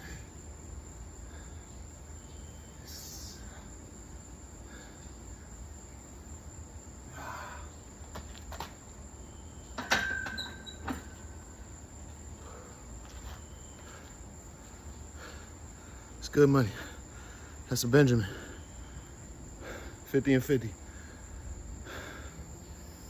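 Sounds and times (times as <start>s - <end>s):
barbell metal clank: 9.8s - 11.1s.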